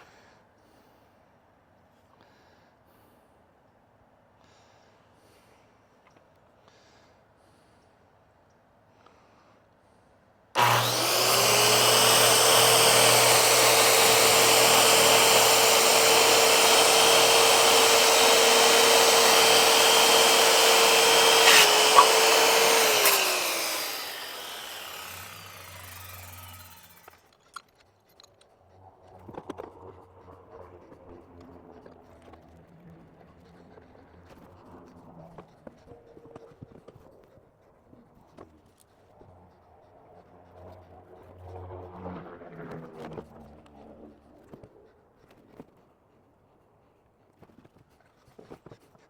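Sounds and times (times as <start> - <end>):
electric power saw cutting wood: 10.6 - 27.4.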